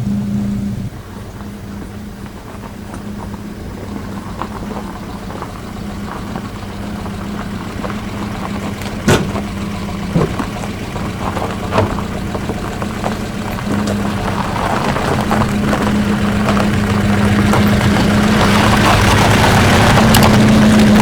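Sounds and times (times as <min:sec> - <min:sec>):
car engine running: 0:00.0 - 0:21.0
sharp knocks: 0:08.8 - 0:10.7.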